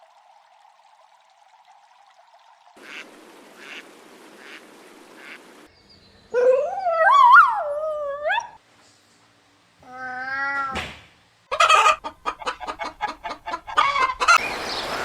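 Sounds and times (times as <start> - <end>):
soft calls: 11.5 - 15.0.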